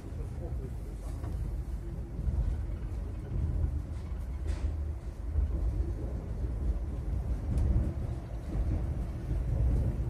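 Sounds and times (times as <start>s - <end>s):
electric train rumbling: 0.0s - 10.0s
faint clicks: 7.4s - 7.7s.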